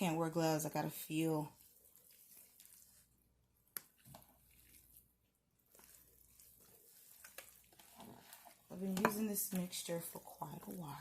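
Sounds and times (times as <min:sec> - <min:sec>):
hands squishing raw poultry: 0:01.5 - 0:11.0.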